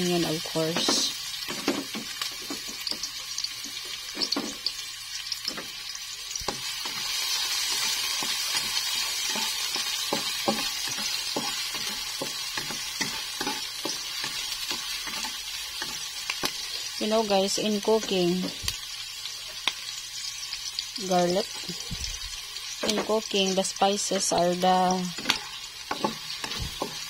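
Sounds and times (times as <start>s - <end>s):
onion sizzling in hot oil: 0.0s - 27.0s
spatula scraping a pan: 6.4s - 16.9s, 25.1s - 27.0s.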